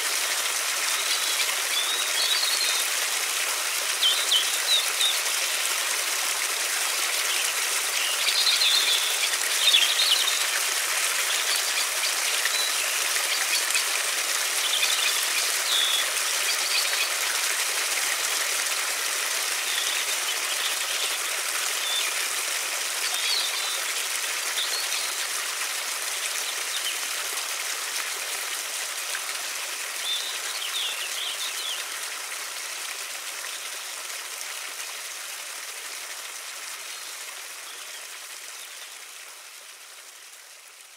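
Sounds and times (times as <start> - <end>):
river water rushing: 0.0 - 31.8.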